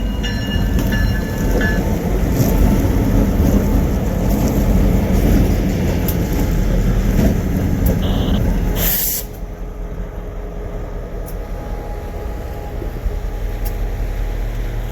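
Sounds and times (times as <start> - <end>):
diesel locomotive rumbling: 0.0 - 14.9
loud hiss of air: 8.8 - 9.4.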